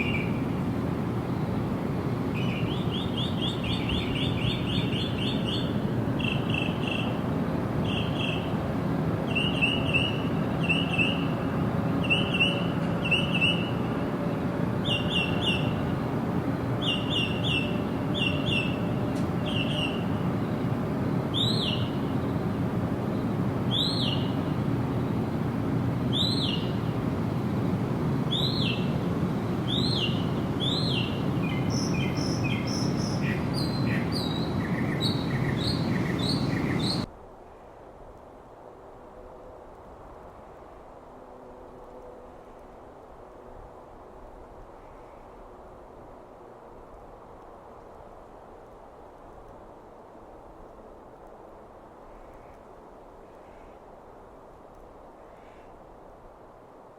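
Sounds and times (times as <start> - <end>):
songbirds chirping: 0.0 - 37.1
low background noise: 0.0 - 56.9.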